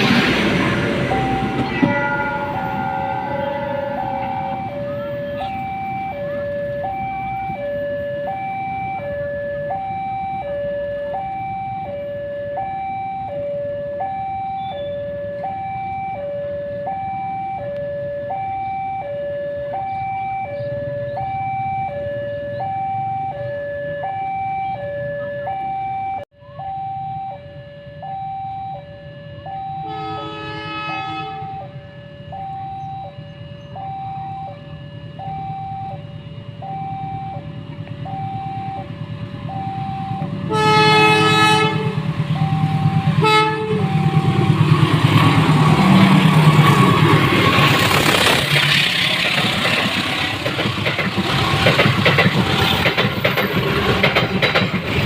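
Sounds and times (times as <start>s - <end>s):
diesel locomotive rumble: 0.0s - 25.6s, 29.4s - 55.0s
level-crossing alarm two-note tone: 0.0s - 48.3s
short horn-like tone: 29.8s - 31.7s, 40.5s - 44.5s.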